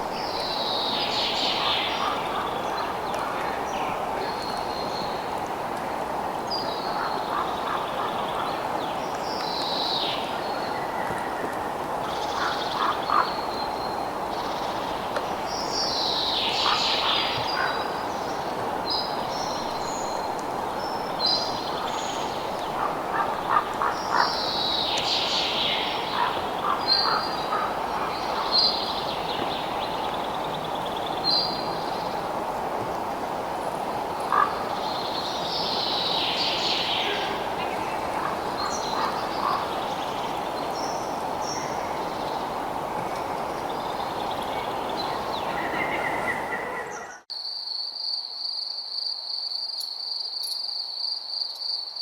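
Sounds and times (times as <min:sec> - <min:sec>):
birds chirping and calling: 0:00.3 - 0:05.2, 0:12.1 - 0:13.8, 0:16.1 - 0:18.3, 0:21.2 - 0:32.1, 0:34.2 - 0:42.6.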